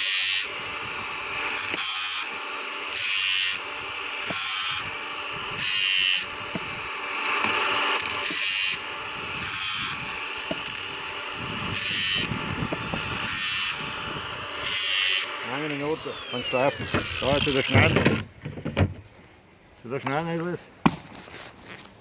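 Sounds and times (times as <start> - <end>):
angle grinder running: 0.0 - 18.4
grinding disc on chain teeth: 7.0 - 18.0.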